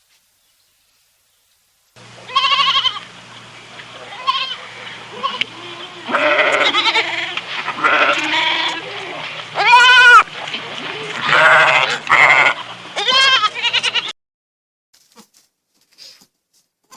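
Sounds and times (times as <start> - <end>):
goats bleating: 2.2 - 3.2, 3.9 - 14.1.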